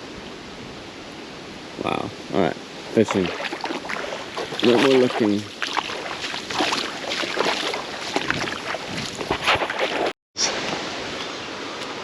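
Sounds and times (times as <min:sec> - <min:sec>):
wind buffeting microphone: 0:01.8 - 0:10.0
sea waves splashing on shore: 0:02.8 - 0:11.1.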